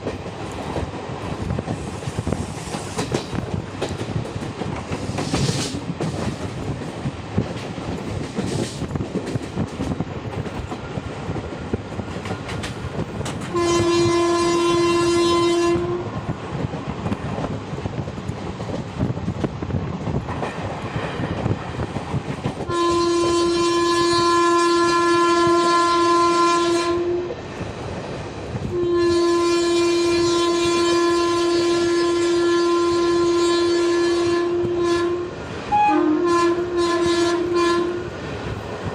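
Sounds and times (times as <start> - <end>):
train wheels clattering over rail joints: 0.0 - 14.2, 16.2 - 23.2
locomotive horn blasts: 13.5 - 16.2, 22.7 - 27.4, 28.7 - 38.2.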